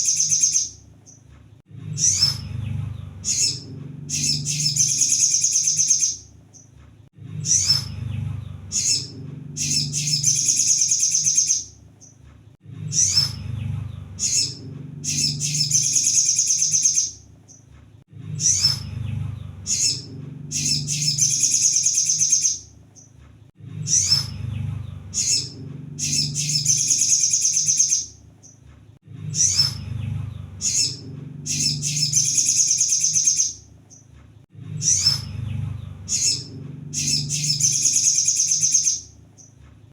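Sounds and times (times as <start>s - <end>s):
sunbird chirps and trill: 0.0s - 1.2s, 1.9s - 6.8s, 7.4s - 12.2s, 12.8s - 17.7s, 18.3s - 23.2s, 23.8s - 28.6s, 29.3s - 34.1s, 34.8s - 39.6s
low hum: 0.0s - 39.7s.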